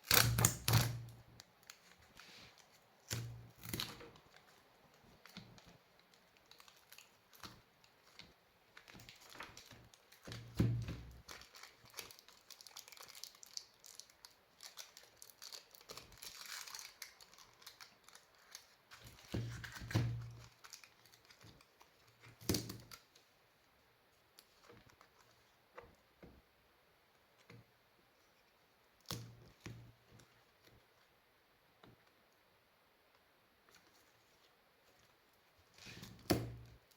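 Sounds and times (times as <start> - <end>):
crinkling and rustling: 0.1 - 31.2, 33.6 - 36.9.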